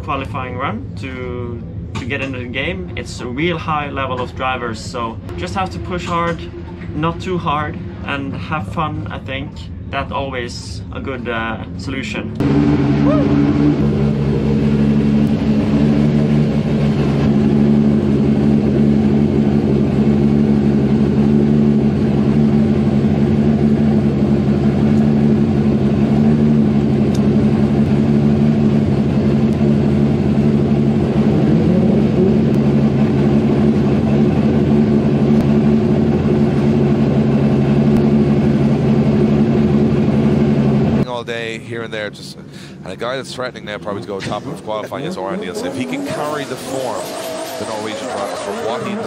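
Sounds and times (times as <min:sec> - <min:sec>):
car engine idling: 0:12.4 - 0:49.0.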